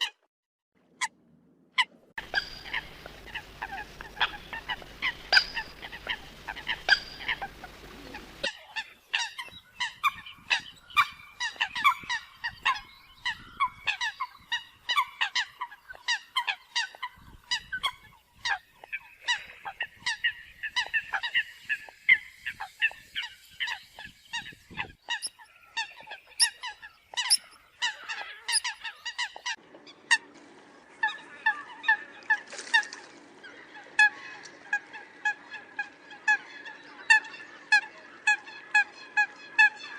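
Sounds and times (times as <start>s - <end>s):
coots honking calls: 2.2s - 30.3s.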